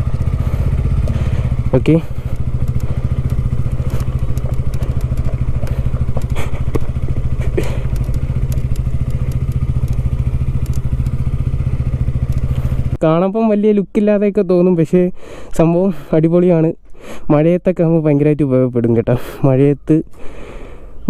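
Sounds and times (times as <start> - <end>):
motorcycle engine running steadily: 0.0 - 13.6
faint clicks: 2.3 - 11.2, 12.2 - 12.7.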